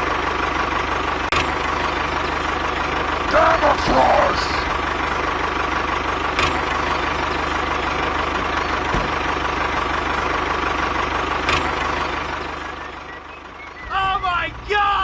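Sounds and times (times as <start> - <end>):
small engine chugging: 0.0 - 15.0.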